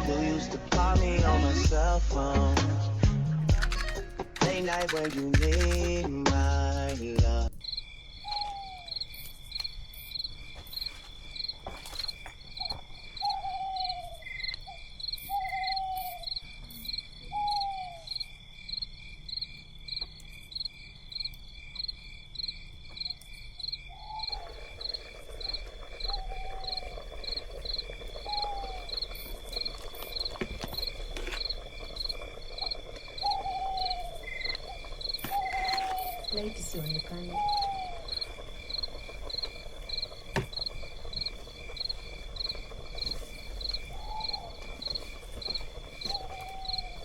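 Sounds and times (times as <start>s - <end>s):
crickets trilling: 3.5s - 47.0s
steady hiss: 24.4s - 47.0s.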